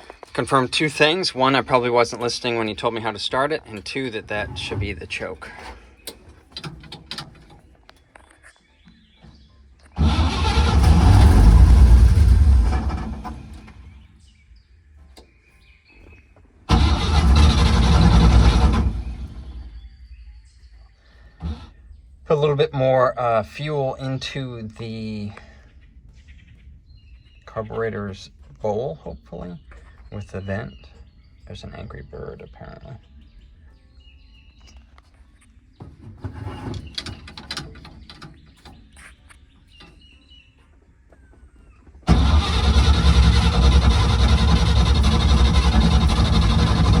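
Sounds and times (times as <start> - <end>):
bird chirping: 0.0 - 10.0, 13.2 - 16.6, 19.0 - 42.1
engine starting and dying: 3.6 - 7.7, 9.8 - 14.1, 16.7 - 19.8, 41.9 - 47.0.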